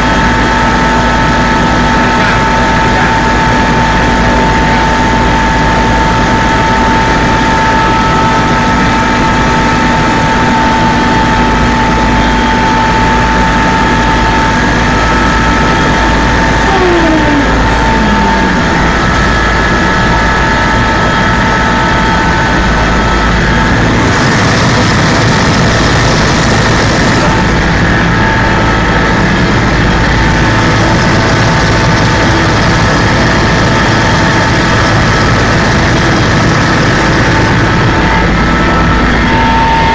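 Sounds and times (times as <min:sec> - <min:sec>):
helicopter engine with whining tones: 0:00.0 - 0:39.9
faint tone falling in pitch: 0:16.4 - 0:19.4.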